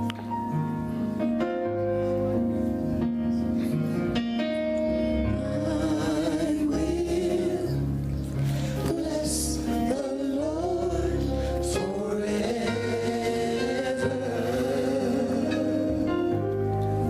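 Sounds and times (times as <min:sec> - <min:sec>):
slow worship song with held chords: 0:00.0 - 0:17.0
person singing with vibrato: 0:05.3 - 0:16.4.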